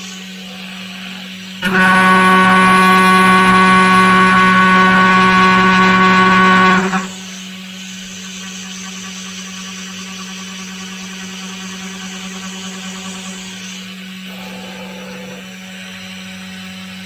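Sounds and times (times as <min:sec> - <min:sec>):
faint high whine: 0:01.6 - 0:07.4
loud pitched machining sound: 0:01.6 - 0:07.4
machine hum: 0:01.6 - 0:07.4.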